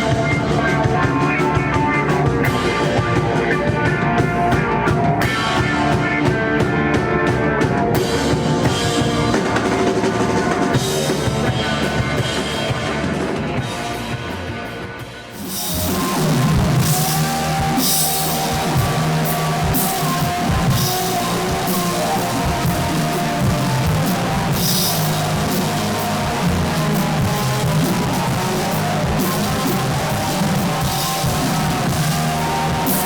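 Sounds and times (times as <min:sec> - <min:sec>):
loud rock band music: 0:00.0 - 0:33.0.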